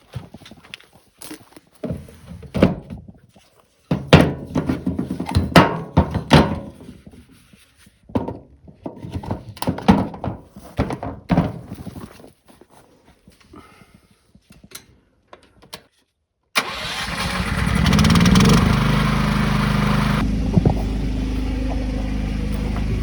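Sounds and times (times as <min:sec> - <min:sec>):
knocks and thuds of roof work: 0:01.8 - 0:03.1, 0:03.9 - 0:07.0, 0:08.1 - 0:12.2.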